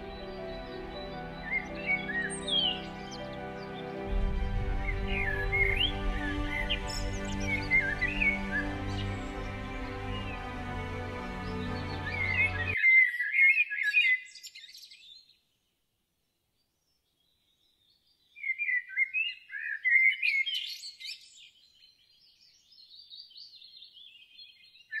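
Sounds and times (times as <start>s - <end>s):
birds chirping: 0.0s - 14.6s.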